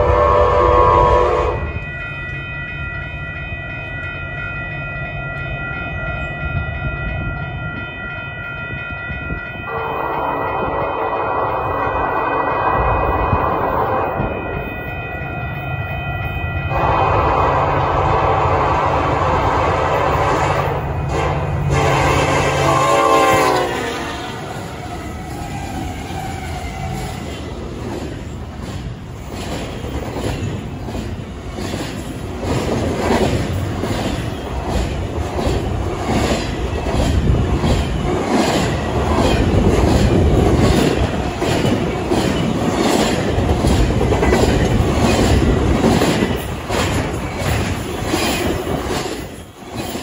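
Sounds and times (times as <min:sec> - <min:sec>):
diesel locomotives passing: 0:00.0 - 0:50.0
train rumble: 0:00.0 - 0:50.0
wheels clacking over rail joints: 0:24.4 - 0:50.0.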